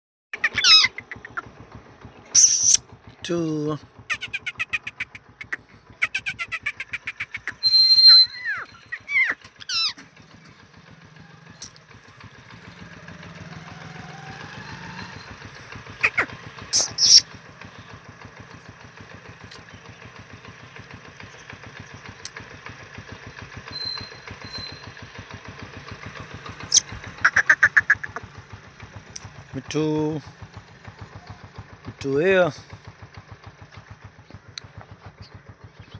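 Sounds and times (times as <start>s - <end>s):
parrot calls and whistles: 0.4s - 1.4s, 2.4s - 2.8s, 4.1s - 9.9s, 16.0s - 17.2s, 26.7s - 28.2s
parrot screeching: 0.4s - 1.4s, 2.4s - 2.8s, 4.1s - 10.0s, 16.0s - 17.2s, 26.7s - 28.2s
engine running: 0.4s - 35.9s.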